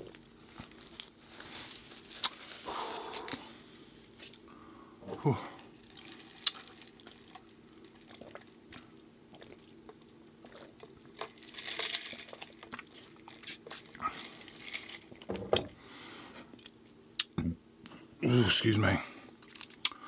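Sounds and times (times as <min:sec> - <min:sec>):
person chewing food: 0:05.6 - 0:15.3, 0:19.4 - 0:20.0
wet mouth clicks: 0:17.2 - 0:17.4.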